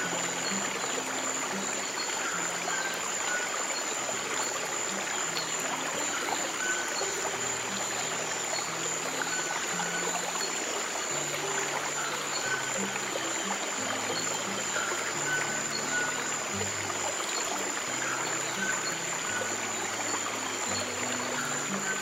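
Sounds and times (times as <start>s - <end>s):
stream water flowing: 0.0s - 22.0s.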